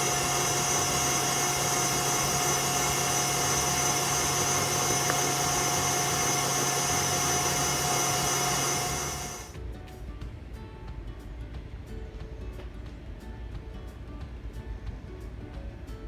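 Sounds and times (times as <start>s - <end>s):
small electric motor whirring: 0.0s - 9.6s.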